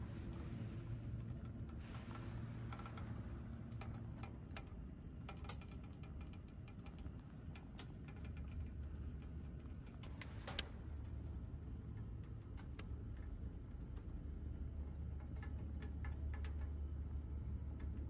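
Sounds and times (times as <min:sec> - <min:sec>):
light clicks and taps: 0:00.0 - 0:11.2, 0:14.8 - 0:18.0
low steady hum: 0:00.0 - 0:18.0.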